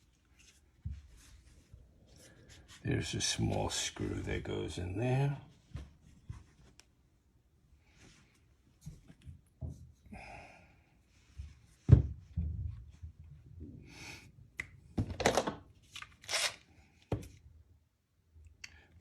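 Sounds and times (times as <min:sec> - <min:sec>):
rubbing and rustling: 0:00.0 - 0:04.6, 0:05.4 - 0:07.1.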